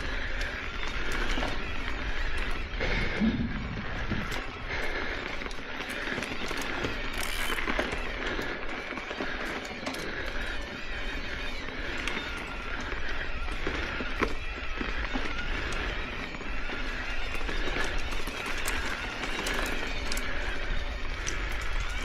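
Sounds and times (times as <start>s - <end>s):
bike clicks and rattles: 0.0s - 22.0s
bike tyres rolling on dirt: 0.0s - 22.0s
low rumble: 2.8s - 4.7s.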